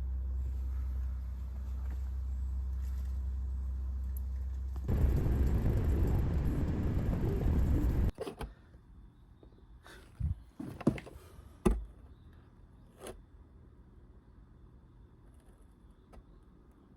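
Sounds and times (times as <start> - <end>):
car engine rumbling: 0.0 - 8.1.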